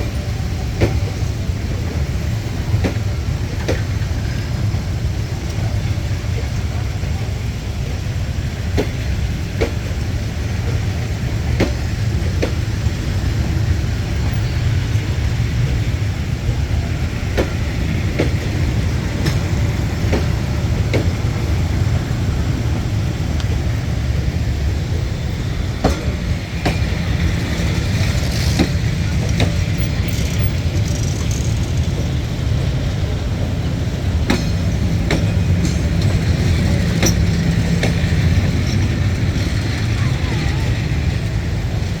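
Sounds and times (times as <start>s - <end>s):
train passing rumble: 0.0s - 42.0s.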